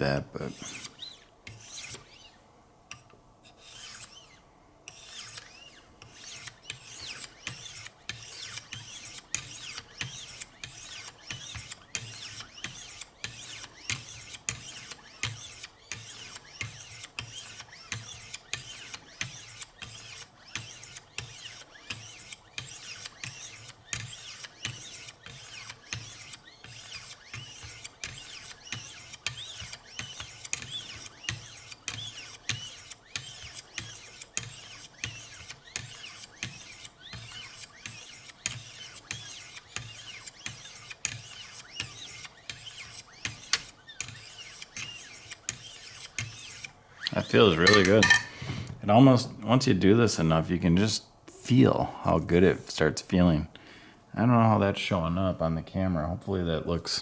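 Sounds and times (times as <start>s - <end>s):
sharpening stone scraping knife blade: 3.6s - 4.2s, 47.5s - 48.5s.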